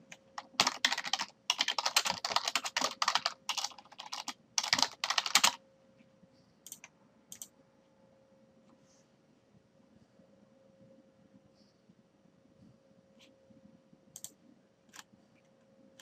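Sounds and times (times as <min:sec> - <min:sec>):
computer keyboard typing: 0:00.0 - 0:05.6, 0:06.6 - 0:07.5, 0:14.2 - 0:15.1.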